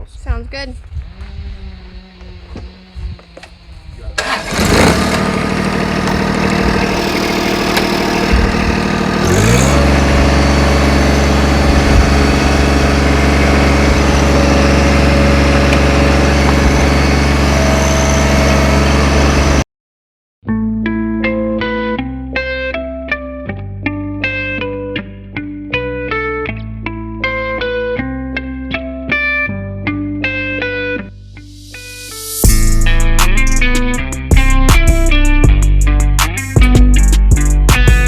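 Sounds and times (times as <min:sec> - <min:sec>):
engine starting and running: 0:00.8 - 0:19.6.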